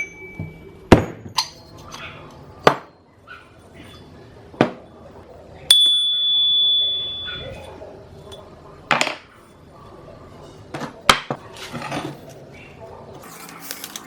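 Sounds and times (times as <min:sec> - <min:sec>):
steel ringing high tone: 0:05.7 - 0:07.5.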